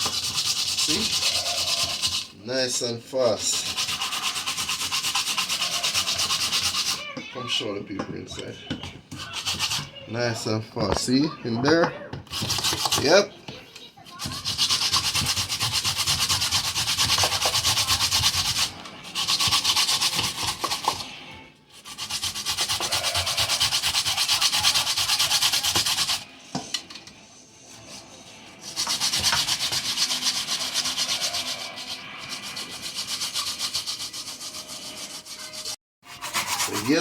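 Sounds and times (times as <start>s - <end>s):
sweet potato rasping on grater: 0.0s - 2.4s, 3.2s - 7.1s, 9.1s - 10.0s, 12.3s - 13.3s, 14.0s - 21.1s, 21.7s - 26.2s, 28.6s - 37.0s.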